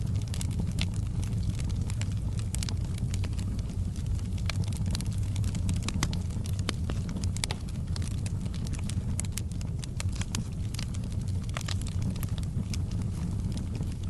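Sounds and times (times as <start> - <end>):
fire crackling and popping: 0.0 - 14.0
low fire rumble: 0.0 - 14.0.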